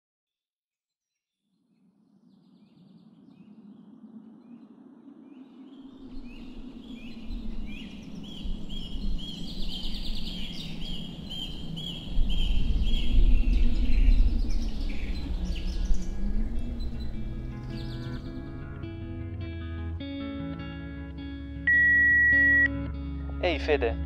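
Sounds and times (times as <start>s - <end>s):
deep rumble: 5.9s - 20.8s.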